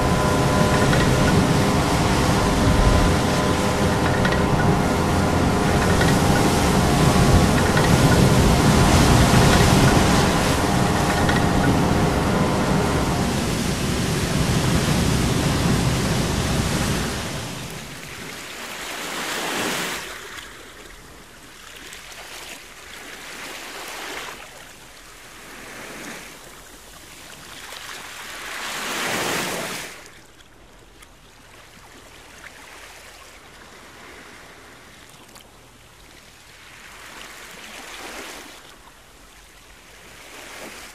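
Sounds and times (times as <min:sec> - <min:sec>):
low steady hum: 0:00.0 - 0:18.4
waves breaking over rocks: 0:00.0 - 0:20.0.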